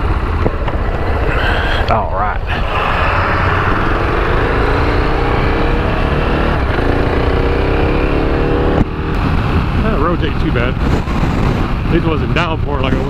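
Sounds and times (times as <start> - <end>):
wind rush: 0.0 - 13.0
motorcycle engine accelerating: 2.6 - 13.0.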